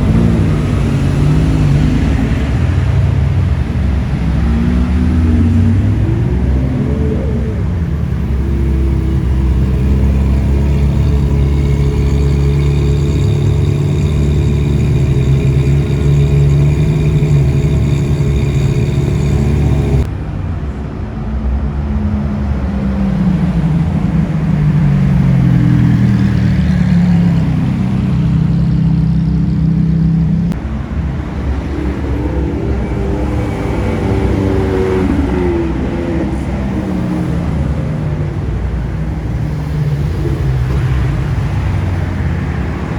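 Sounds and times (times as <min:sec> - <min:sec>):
car engine revving and accelerating: 0:00.0 - 0:20.1, 0:22.2 - 0:42.9
car engine running steadily: 0:00.0 - 0:20.9.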